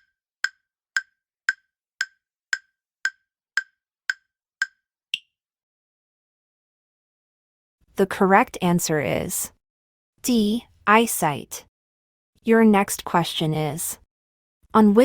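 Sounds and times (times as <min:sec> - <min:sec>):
wooden timer ticks: 0:00.0 - 0:05.3.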